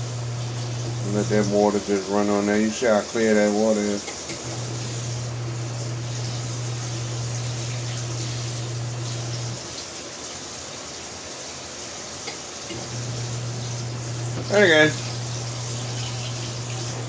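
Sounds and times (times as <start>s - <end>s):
low electric hum: 0.0s - 3.3s, 3.9s - 9.6s, 12.8s - 17.0s
water running into a tub: 0.0s - 17.0s.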